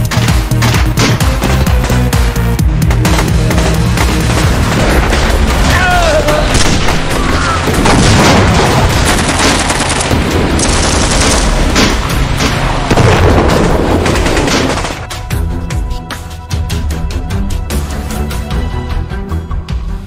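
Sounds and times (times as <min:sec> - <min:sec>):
rapid gunfire: 0:00.0 - 0:15.1
background music: 0:00.0 - 0:20.0.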